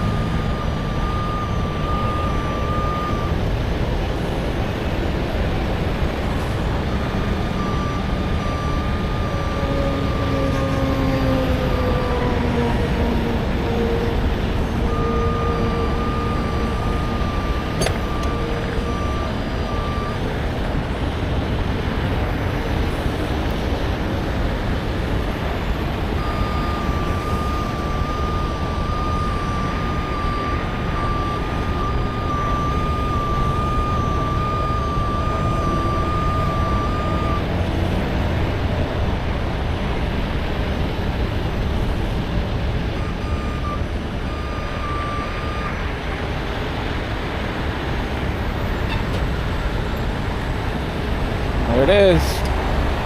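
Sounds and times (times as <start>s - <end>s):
back-up alarm beeping: 0.0s - 4.0s, 6.8s - 10.4s, 14.6s - 21.1s, 25.6s - 37.7s, 42.8s - 46.4s
heavy truck engine running: 0.0s - 53.0s.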